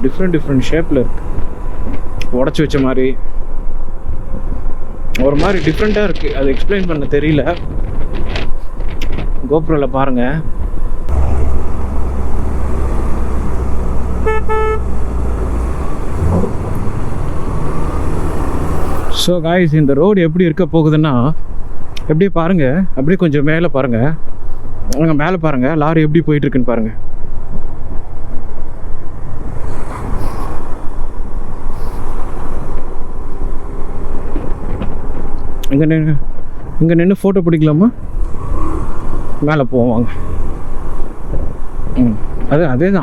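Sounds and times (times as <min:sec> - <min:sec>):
wind noise: 0:00.0 - 0:19.3, 0:27.1 - 0:36.9, 0:37.8 - 0:43.0
motorcycle engine drone: 0:10.3 - 0:19.5
horn beeps: 0:14.1 - 0:15.5.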